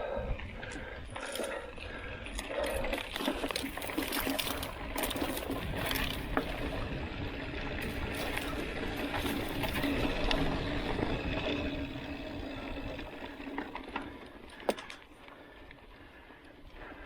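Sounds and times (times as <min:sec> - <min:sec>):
bike tyres rolling on dirt: 0:00.0 - 0:17.0
bike chain rattling and clicking: 0:00.4 - 0:17.0.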